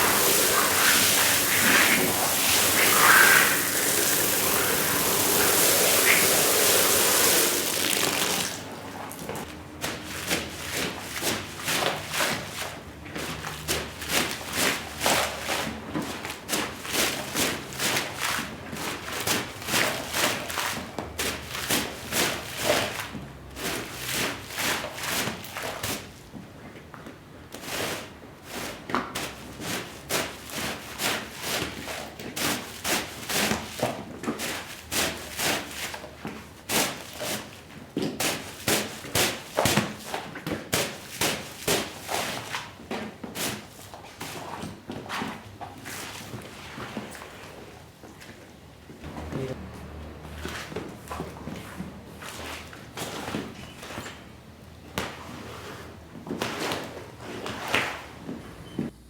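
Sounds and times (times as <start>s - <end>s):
water spraying: 0.0s - 9.5s.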